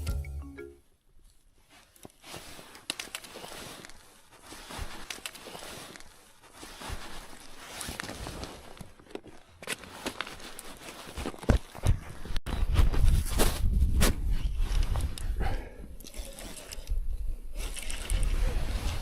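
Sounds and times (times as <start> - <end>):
rustling of gear: 1.2 - 15.4.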